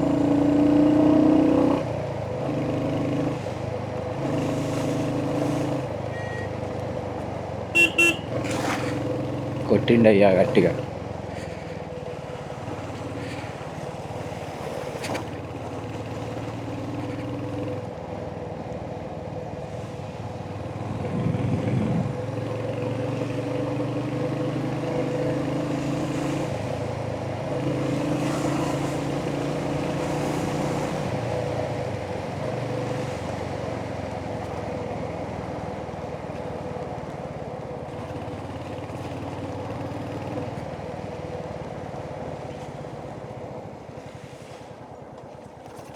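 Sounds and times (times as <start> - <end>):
motorcycle engine revving: 7.8 - 10.9, 20.8 - 31.4.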